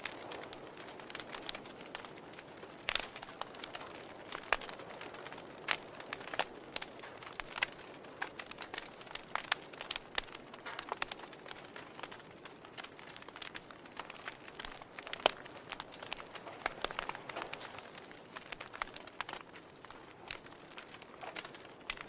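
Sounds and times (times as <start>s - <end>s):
campfire popping and crackling: 0.0s - 22.0s.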